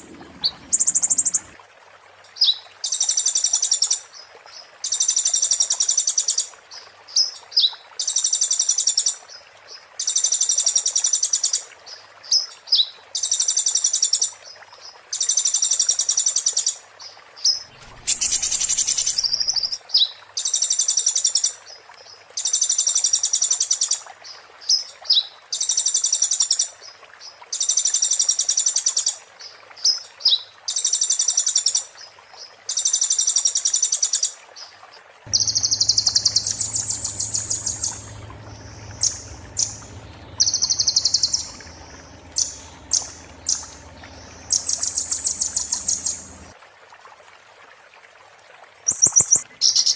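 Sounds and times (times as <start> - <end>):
short bird chirps: 17.7 - 19.8, 35.3 - 46.5
songbird chattering: 17.7 - 19.8, 35.3 - 46.5.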